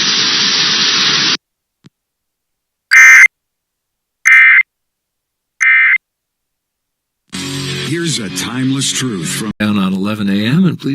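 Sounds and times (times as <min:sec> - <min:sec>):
hiss: 0:00.0 - 0:01.4
buzzy two-tone digital squawks: 0:02.9 - 0:03.3, 0:04.3 - 0:04.7, 0:05.6 - 0:06.0.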